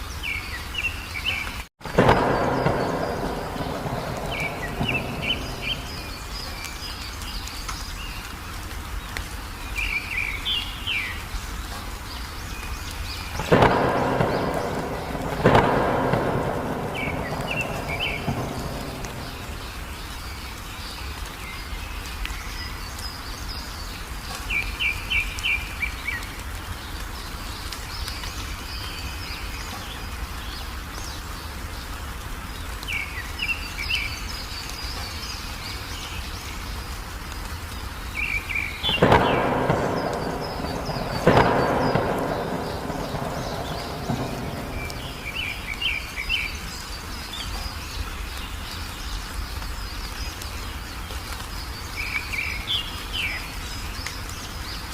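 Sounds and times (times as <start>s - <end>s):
songbird chirping: 0.0s - 54.9s
steady rain: 0.0s - 54.9s
thunder claps: 1.8s - 7.6s, 13.0s - 20.7s, 38.1s - 47.7s.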